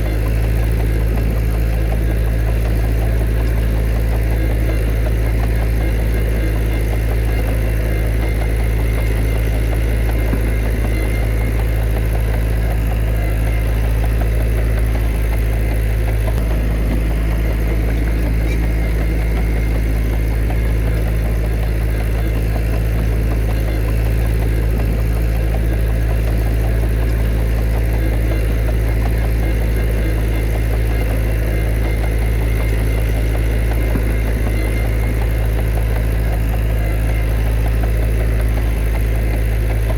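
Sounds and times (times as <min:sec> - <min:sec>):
heavy machinery diesel engine running: 0:00.0 - 0:39.9.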